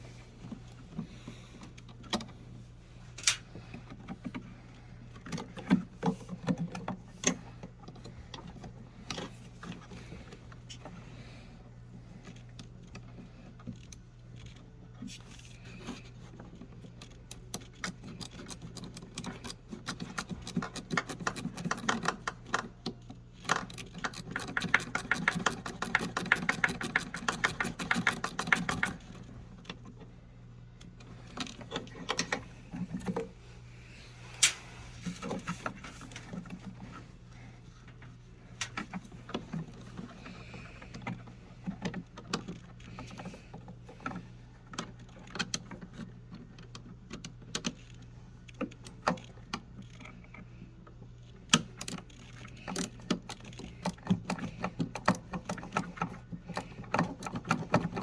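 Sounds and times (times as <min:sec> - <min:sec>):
tools and parts rattling: 0:16.5 - 0:30.0, 0:51.7 - 0:58.0
fast even clicking: 0:23.7 - 0:29.0.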